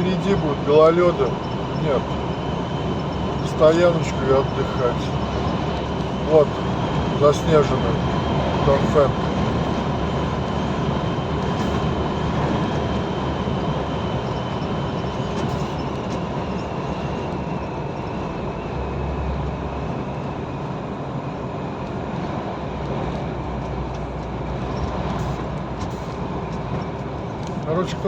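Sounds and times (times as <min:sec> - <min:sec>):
truck engine and road noise: 0:00.0 - 0:28.0.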